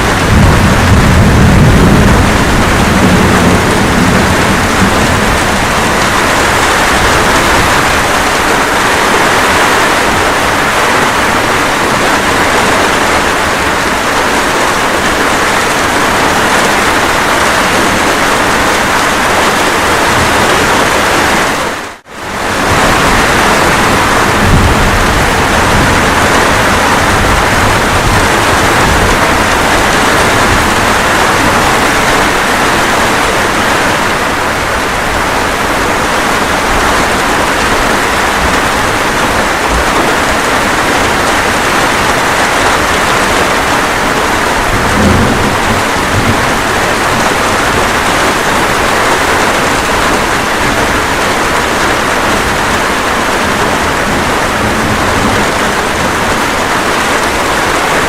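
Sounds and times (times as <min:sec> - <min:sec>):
low thunder rumble: 0:00.0 - 0:15.0, 0:22.4 - 0:58.0
steady rain: 0:00.0 - 0:58.0.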